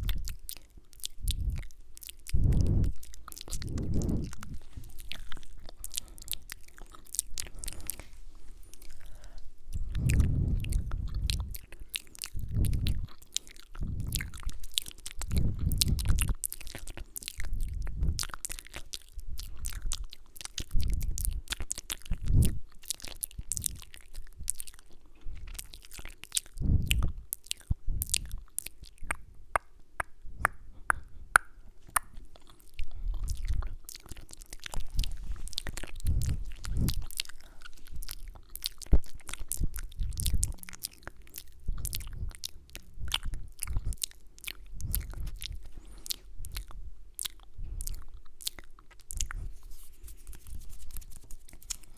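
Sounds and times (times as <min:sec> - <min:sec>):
wet mouth clicks and smacks: 0:00.0 - 0:51.9.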